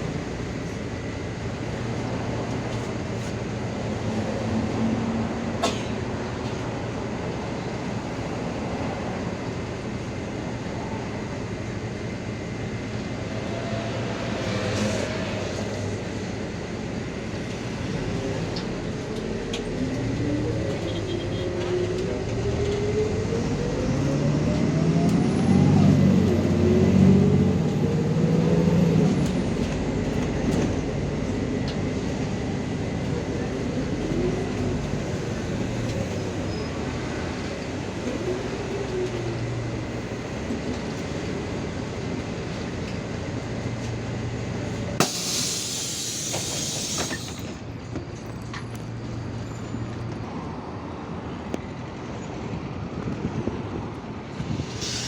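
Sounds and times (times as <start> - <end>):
city bus engine running: 0.0 - 55.0
compressed air hiss: 45.0 - 47.6, 54.5 - 55.0.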